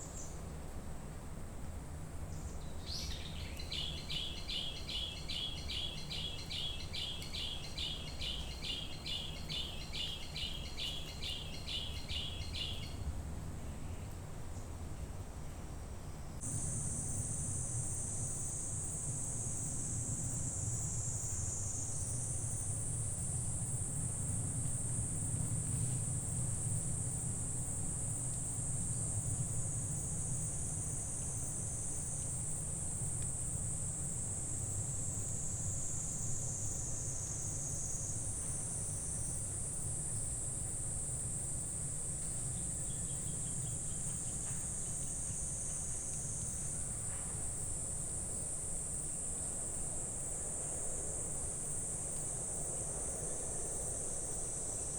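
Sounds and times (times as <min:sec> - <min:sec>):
insects chirring: 0:16.4 - 0:54.9.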